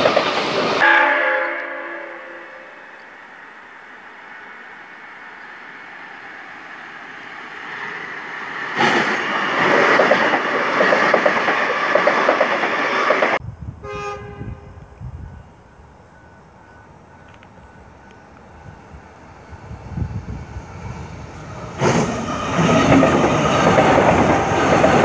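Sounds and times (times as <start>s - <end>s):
train rushing past clattering: 0.0s - 13.4s, 14.1s - 25.0s
distant train horn: 0.8s - 5.5s, 13.8s - 18.8s.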